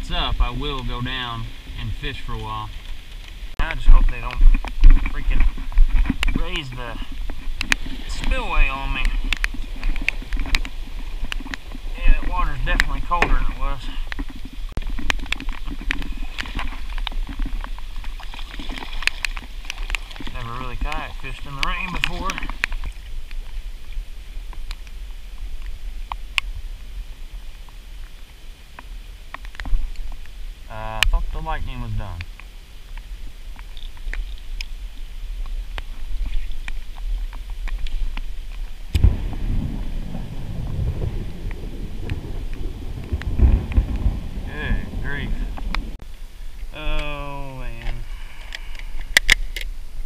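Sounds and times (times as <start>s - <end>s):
steady low rumble: 0.0s - 33.7s, 34.6s - 46.8s
raindrops ticking on kayak: 0.0s - 50.0s
thunder clap and rumble: 38.9s - 46.0s.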